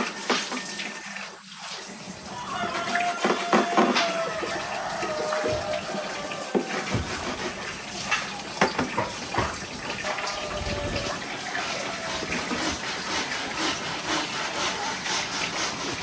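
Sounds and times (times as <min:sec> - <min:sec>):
running water: 0:00.0 - 0:16.0
sharp knocks: 0:05.4 - 0:09.7.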